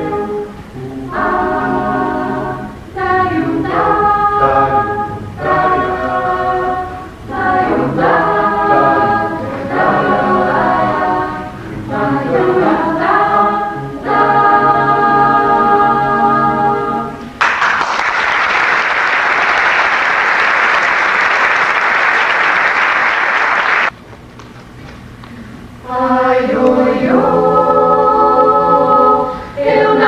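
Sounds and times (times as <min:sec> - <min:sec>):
choir singing: 0:00.0 - 0:17.4, 0:25.8 - 0:30.0
audience applauding: 0:17.4 - 0:24.0.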